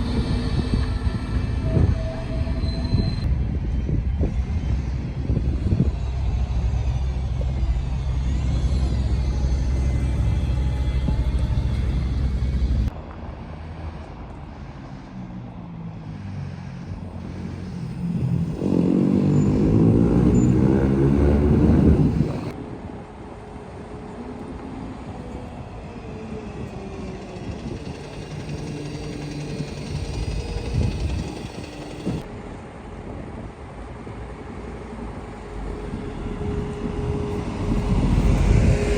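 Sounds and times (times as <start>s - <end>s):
bus engine running: 0.0s - 38.9s
traffic rumble: 0.0s - 38.9s
vehicle pulling away: 5.1s - 22.6s, 25.3s - 32.3s, 34.7s - 38.9s.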